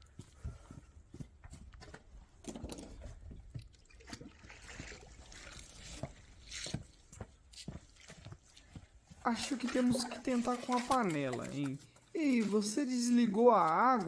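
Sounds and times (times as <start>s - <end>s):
handling knocks and scrapes: 1.4s - 12.7s
water trickling and splashing: 2.4s - 12.5s.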